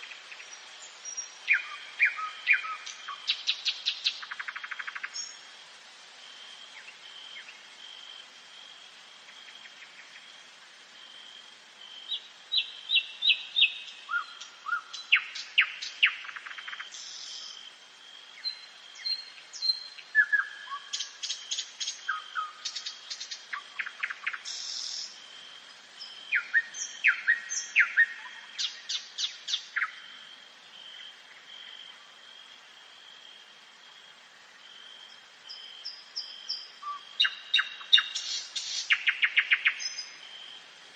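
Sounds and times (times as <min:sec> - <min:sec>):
nightingale singing: 0:00.0 - 0:05.5, 0:11.8 - 0:17.7, 0:18.4 - 0:25.3, 0:26.0 - 0:30.2, 0:35.0 - 0:40.6.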